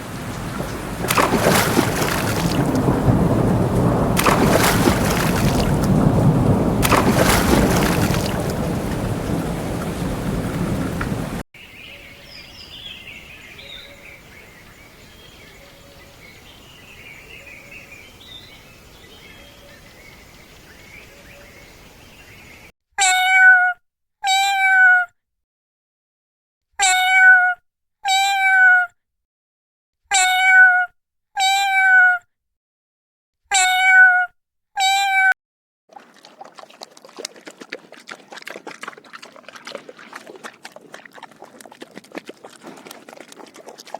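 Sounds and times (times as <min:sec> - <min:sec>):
cat meowing: 0:23.0 - 0:25.1, 0:26.8 - 0:28.9, 0:30.1 - 0:32.2, 0:33.5 - 0:35.3.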